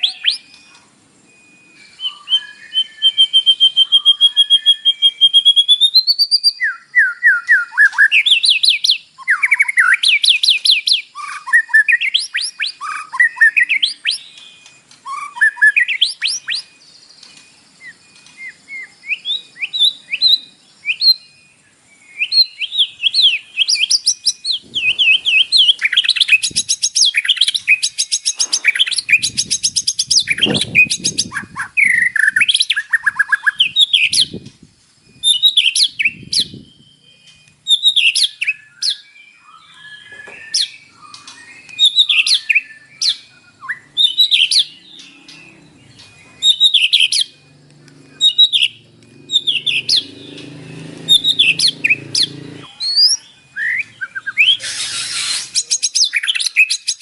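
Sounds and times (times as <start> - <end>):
bird singing whistled phrases: 0.0 - 57.0.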